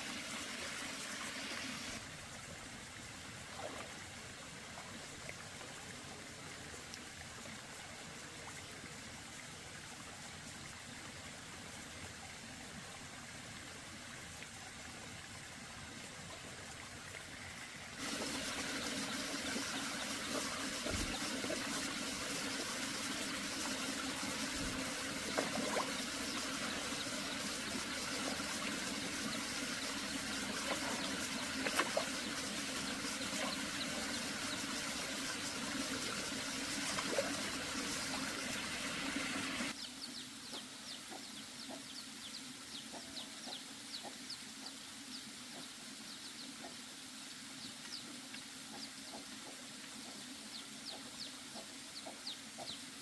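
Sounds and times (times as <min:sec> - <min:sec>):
water running: 0:18.0 - 0:39.7.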